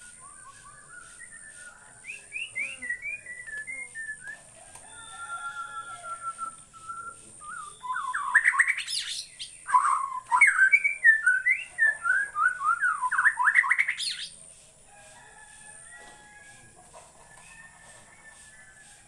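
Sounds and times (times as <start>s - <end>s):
songbird singing: 0.0s - 14.6s.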